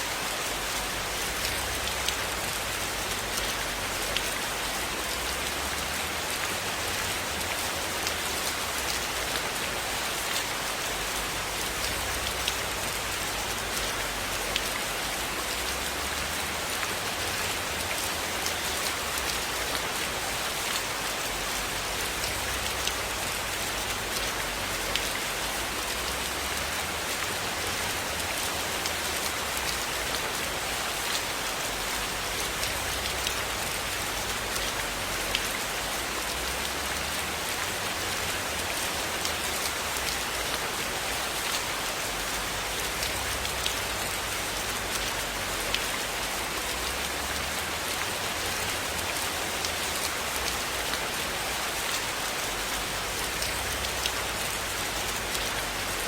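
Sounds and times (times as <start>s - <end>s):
rain hiss: 0.0s - 56.0s
sharp raindrop ticks: 32.4s - 35.6s, 36.2s - 46.0s, 46.6s - 56.0s.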